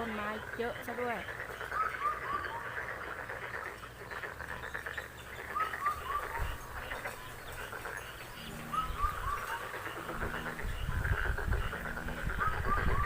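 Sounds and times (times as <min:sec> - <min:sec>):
bird calling falling notes: 0:05.4 - 0:07.4, 0:08.4 - 0:10.8
wind and rain hiss: 0:06.1 - 0:13.0.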